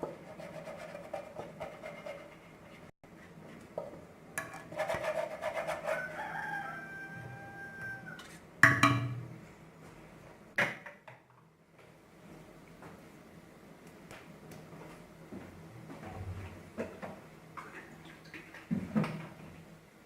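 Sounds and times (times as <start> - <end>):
rooster crowing: 5.8 - 8.3.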